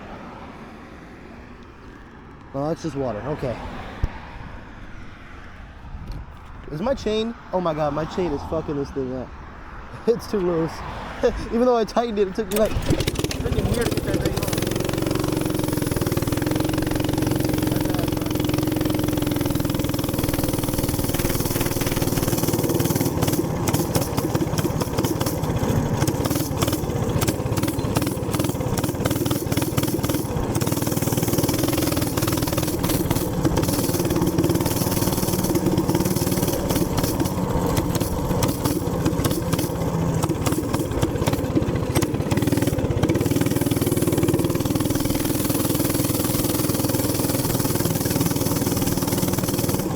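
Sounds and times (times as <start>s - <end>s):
small gas engine running: 12.0s - 49.9s.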